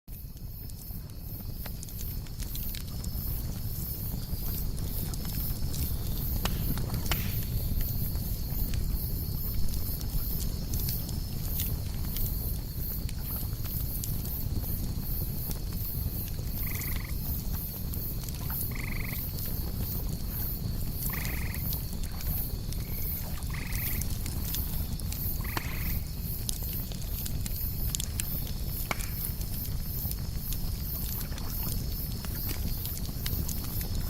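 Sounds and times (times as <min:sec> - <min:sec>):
campfire crackling: 0:00.1 - 0:34.0
high insect trill: 0:00.2 - 0:34.0
night animal call: 0:16.6 - 0:17.2, 0:18.4 - 0:19.3, 0:21.1 - 0:21.7, 0:22.9 - 0:24.0.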